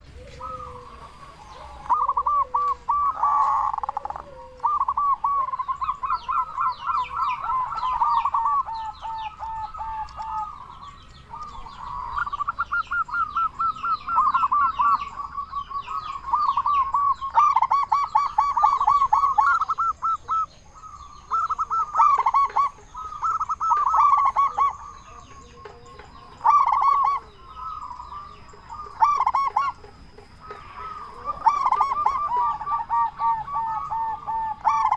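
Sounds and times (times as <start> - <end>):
dove cooing: 0.0 - 34.9.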